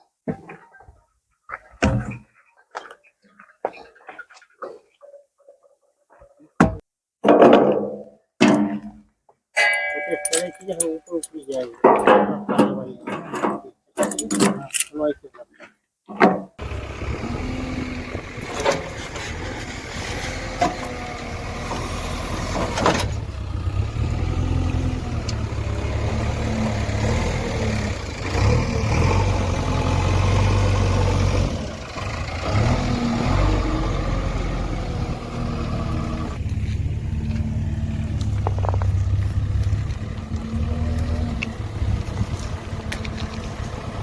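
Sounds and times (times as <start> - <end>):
diesel engine running: 16.6 - 44.0.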